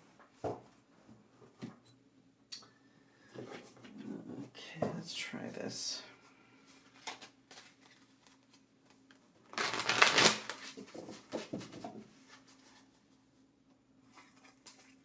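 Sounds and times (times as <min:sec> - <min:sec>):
cards being shuffled: 0:06.9 - 0:11.3.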